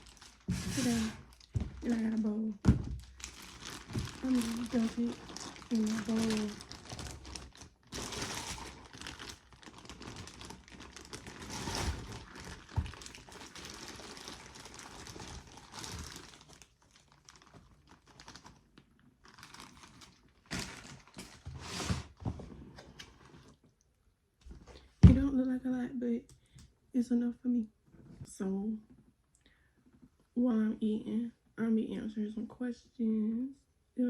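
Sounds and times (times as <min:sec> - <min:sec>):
packaging rustling and crinkling: 0:00.0 - 0:23.6.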